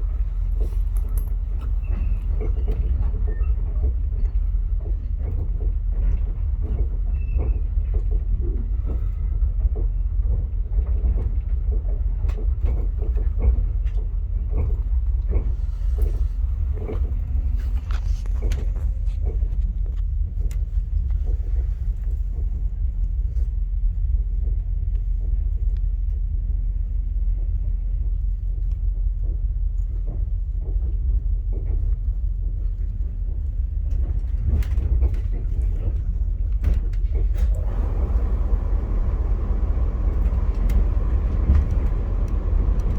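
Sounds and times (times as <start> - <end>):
train rumbling on track: 0.0 - 42.9
train wheels clicking: 36.6 - 42.9.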